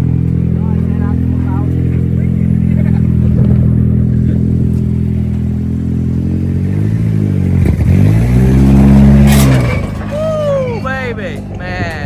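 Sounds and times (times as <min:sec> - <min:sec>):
pickup engine at high revs: 0:00.0 - 0:11.6.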